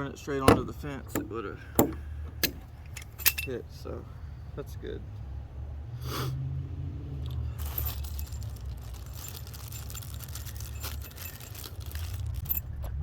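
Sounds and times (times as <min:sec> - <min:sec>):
low steady rumble: 0:00.0 - 0:05.6, 0:07.2 - 0:13.0
jingling and scraping handling noise: 0:00.4 - 0:03.7, 0:07.3 - 0:13.0.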